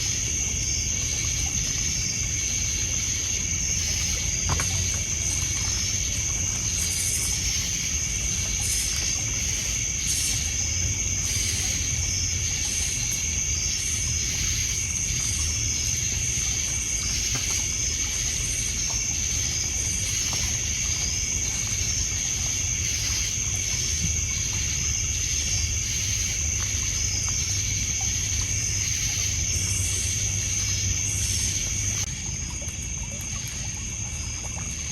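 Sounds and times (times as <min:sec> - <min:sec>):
crickets trilling: 0:00.0 - 0:34.9
water lapping on pebbles: 0:00.0 - 0:34.9.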